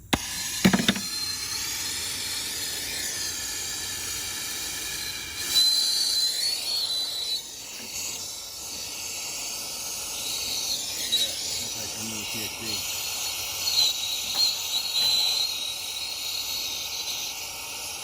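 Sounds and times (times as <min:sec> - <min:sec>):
gas hissing under pressure: 0:00.0 - 0:18.0.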